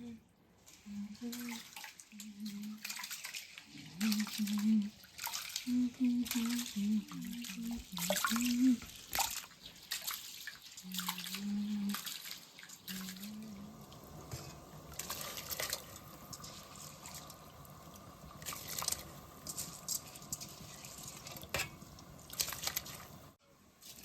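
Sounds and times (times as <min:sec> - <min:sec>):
water dripping and splashing: 0:00.5 - 0:24.0
person speaking: 0:05.7 - 0:08.8.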